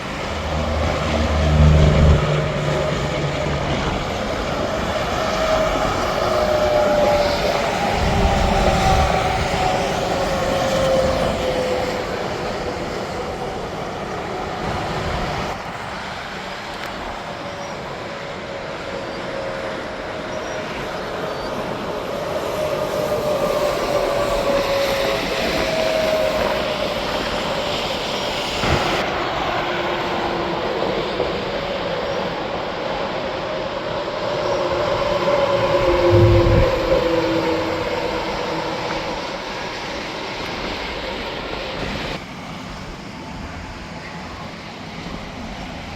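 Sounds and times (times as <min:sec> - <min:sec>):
trucks passing: 0:00.0 - 0:16.0, 0:34.4 - 0:41.4
highway traffic rushing: 0:00.0 - 0:45.9.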